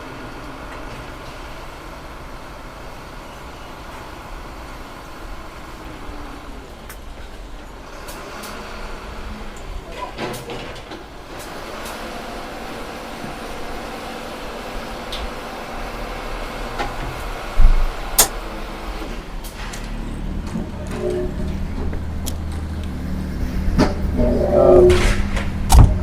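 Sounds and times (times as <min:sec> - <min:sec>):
low mechanical rumble: 0:11.1 - 0:26.0.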